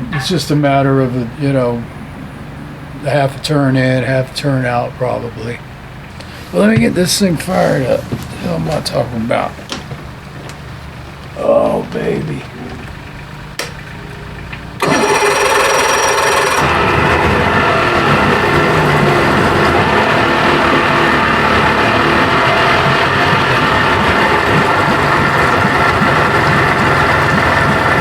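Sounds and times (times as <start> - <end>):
thin high whine: 0.0 - 5.9
outboard motor starting and running: 0.0 - 28.0.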